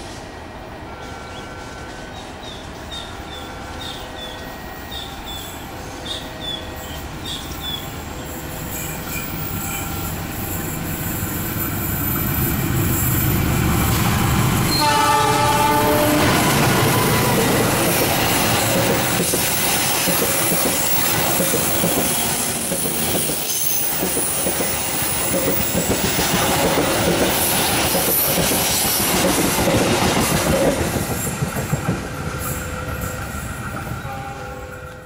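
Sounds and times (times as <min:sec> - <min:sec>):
high wheel squeal: 0:01.0 - 0:13.6, 0:14.6 - 0:25.8
train wheels clattering: 0:11.6 - 0:35.0.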